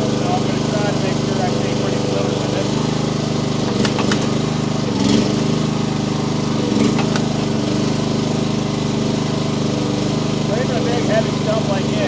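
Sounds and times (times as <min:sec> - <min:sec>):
excavator engine running: 0:00.0 - 0:12.0
sharp clicks and knocks: 0:03.6 - 0:04.5, 0:06.8 - 0:07.6.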